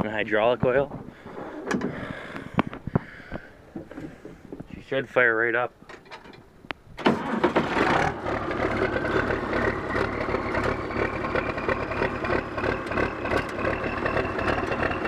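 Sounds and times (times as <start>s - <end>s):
tractor engine starting and idling: 7.0s - 15.0s.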